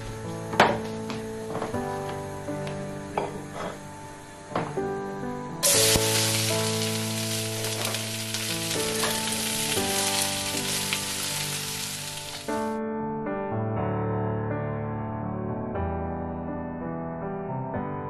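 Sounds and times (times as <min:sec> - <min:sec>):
peppers sizzling in hot oil: 0:05.6 - 0:12.6.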